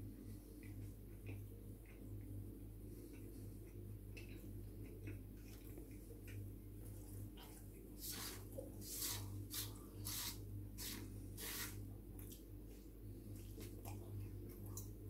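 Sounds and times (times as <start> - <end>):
steady low hum: 0.0 - 15.0
crackly chewing noises: 0.1 - 8.8, 12.1 - 15.0.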